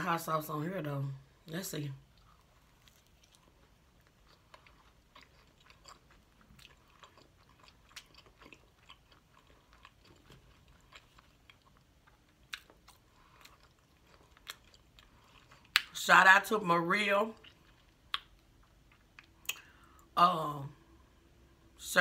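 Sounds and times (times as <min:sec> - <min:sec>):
person chewing food: 0:02.0 - 0:16.0, 0:17.3 - 0:20.2
mouth clicks and smacks: 0:18.1 - 0:18.5.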